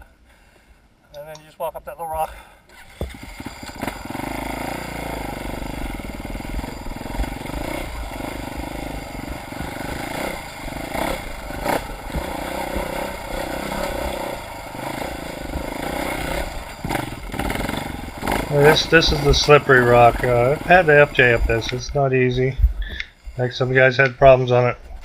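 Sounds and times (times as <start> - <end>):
dirt bike engine running: 2.0 - 24.6.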